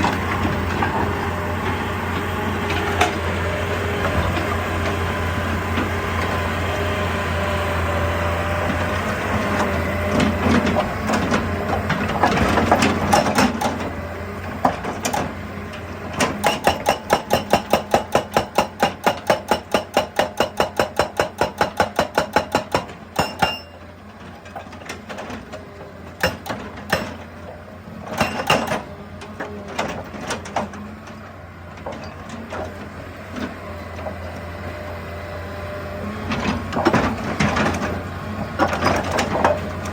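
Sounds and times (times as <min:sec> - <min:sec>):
diesel engine under load: 0:00.0 - 0:39.9
hydraulic hammer pounding rock: 0:08.6 - 0:23.8, 0:24.5 - 0:30.8, 0:36.3 - 0:39.9.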